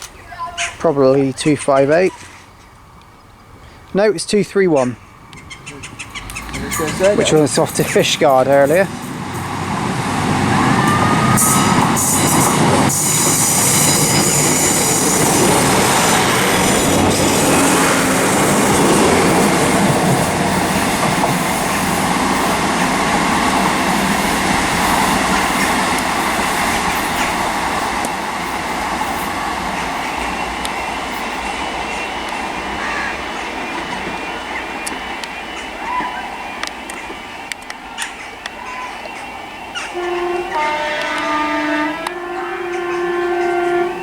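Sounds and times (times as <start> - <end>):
train wheels on rails: 4.8 - 44.0
high wheel squeal: 5.4 - 8.9, 10.4 - 22.6.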